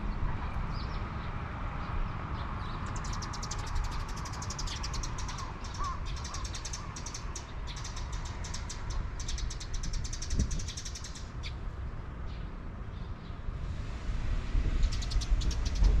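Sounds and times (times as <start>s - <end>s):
small birds chirping rapidly: 0.0s - 13.5s, 14.7s - 16.0s
low outdoor rumble: 11.2s - 16.0s.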